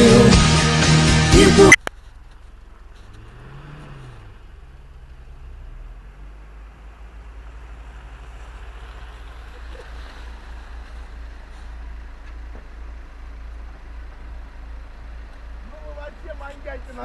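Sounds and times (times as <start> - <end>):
vehicle engine rumbling: 0.0 - 17.0
tyre or water noise: 7.6 - 11.8.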